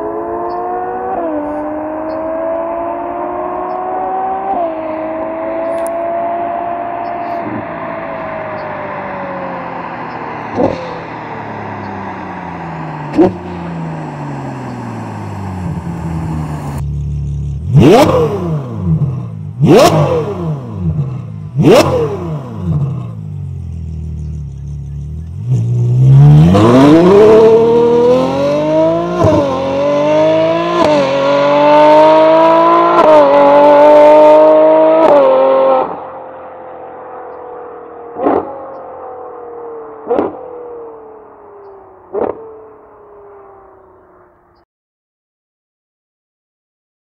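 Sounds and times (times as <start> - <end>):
quick gear upshifts: 0.0 - 36.0, 37.2 - 43.5
car engine revving: 0.0 - 44.2.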